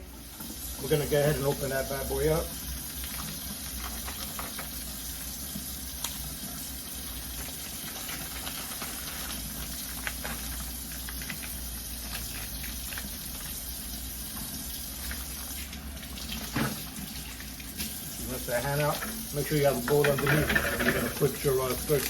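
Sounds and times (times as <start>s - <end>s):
tap running into sink: 14.4s - 22.0s.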